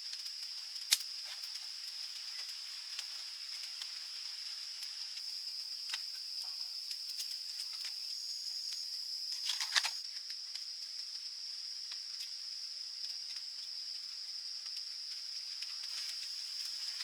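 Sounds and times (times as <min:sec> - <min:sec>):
insects droning: 0:00.0 - 0:17.0
small clicks: 0:09.4 - 0:10.7.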